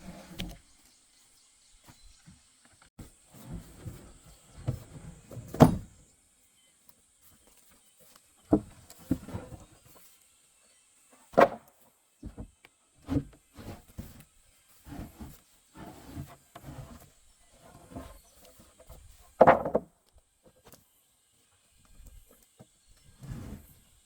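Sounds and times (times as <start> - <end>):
knocks and thuds: 19.4 - 19.9.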